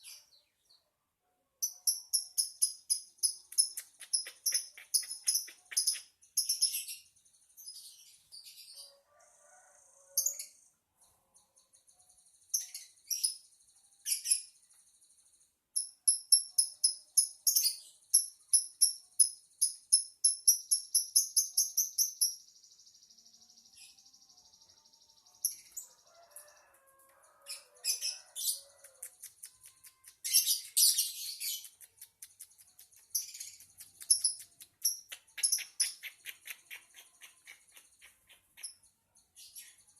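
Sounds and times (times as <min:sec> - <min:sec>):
lovebird chirping and trilling: 0:01.6 - 0:07.0, 0:27.5 - 0:38.8.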